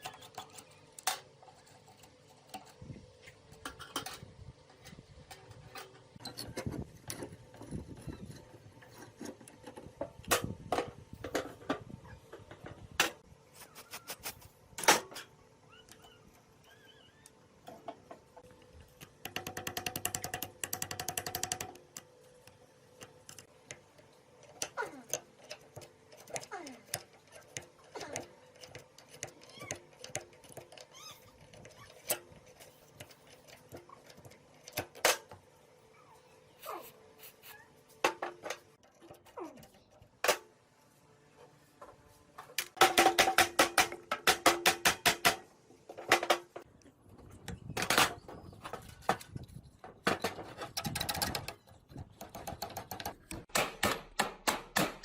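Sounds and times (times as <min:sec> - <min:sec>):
rapid mechanical clicking: 0:18.9 - 0:22.1.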